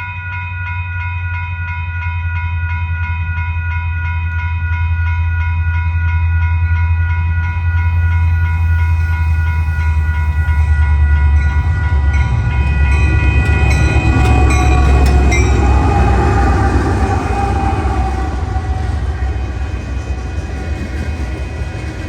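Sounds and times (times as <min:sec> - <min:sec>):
steady ringing tone: 0:00.0 - 0:22.0
locomotive engines rumbling: 0:06.2 - 0:22.0
wheels clicking on rails: 0:08.4 - 0:22.0.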